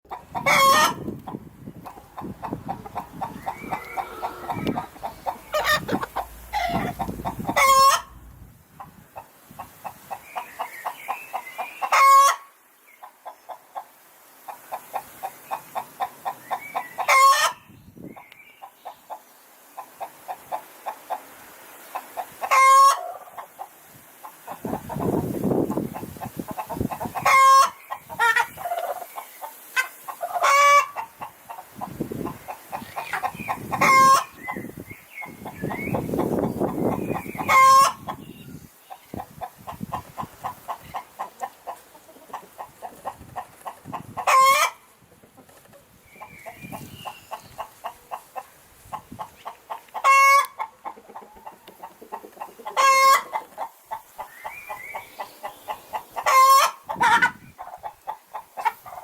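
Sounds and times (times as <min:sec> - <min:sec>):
hens clucking: 0:00.1 - 0:10.8, 0:22.0 - 0:38.3, 0:38.9 - 0:59.0
hen squawks: 0:01.9 - 0:08.4.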